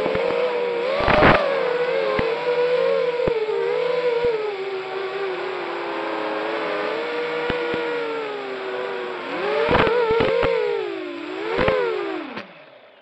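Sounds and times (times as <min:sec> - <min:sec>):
quadcopter motors whining: 0:00.0 - 0:13.0
sharp clicks: 0:09.6 - 0:10.6.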